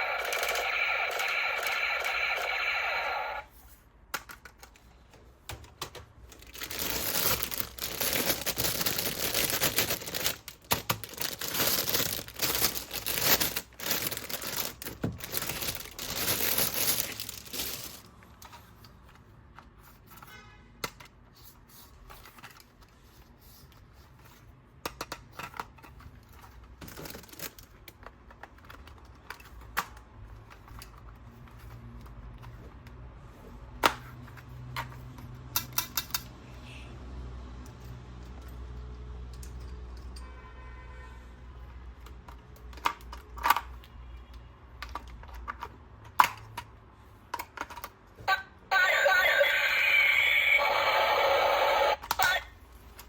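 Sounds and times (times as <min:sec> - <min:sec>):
plastic packaging crinkling and tearing: 0:06.2 - 0:18.3, 0:26.8 - 0:28.0.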